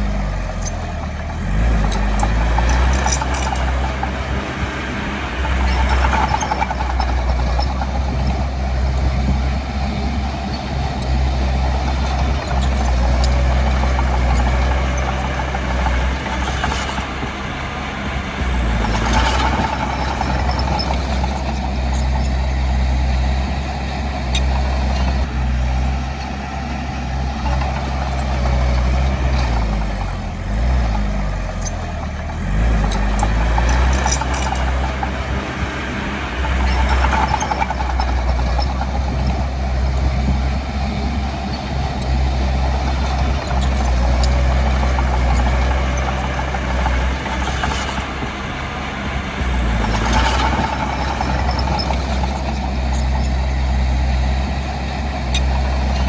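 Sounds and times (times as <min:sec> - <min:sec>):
diesel machinery engine running: 0:00.0 - 0:56.0.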